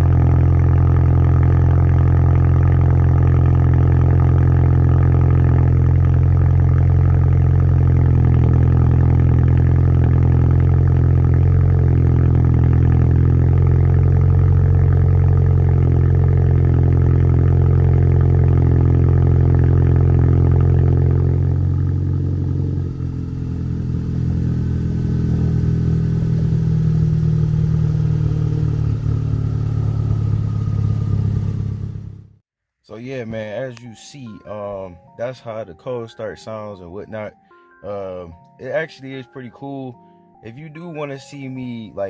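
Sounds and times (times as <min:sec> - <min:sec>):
car engine idling with deep drone: 0:00.0 - 0:32.4.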